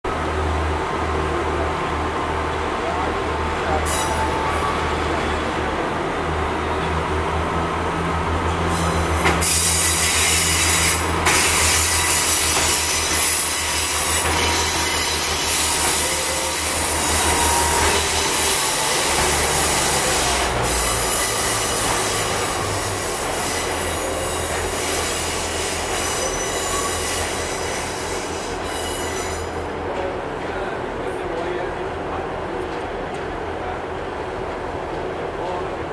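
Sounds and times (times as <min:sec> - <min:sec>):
train wheels squealing on rails: 0:03.6 - 0:05.6, 0:08.5 - 0:30.1.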